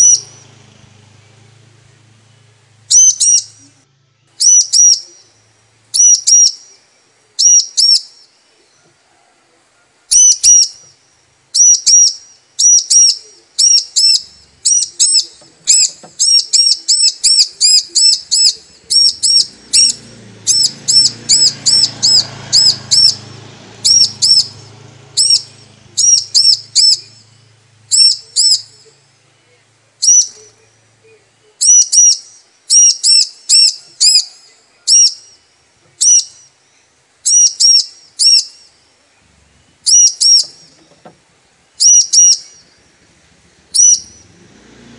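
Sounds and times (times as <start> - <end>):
low hum: 0.0 - 4.4
bird chirping: 0.0 - 8.9, 10.1 - 44.9.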